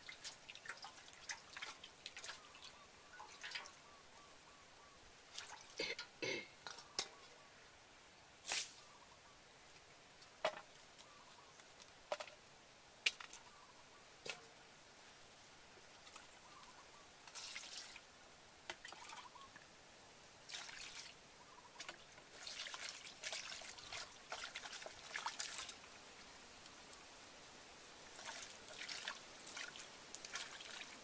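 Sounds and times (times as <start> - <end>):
water splashing in metal bowl: 0.0 - 3.8, 5.3 - 7.2, 17.3 - 18.0, 18.7 - 19.3, 20.5 - 21.2, 21.8 - 25.8, 28.1 - 31.0.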